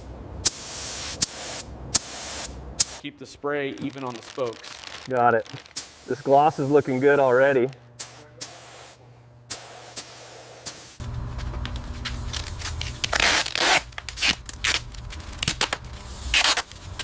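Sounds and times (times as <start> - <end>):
low steady hum: 0.0 - 17.0
short hissing rasps: 0.4 - 3.1, 4.0 - 11.0.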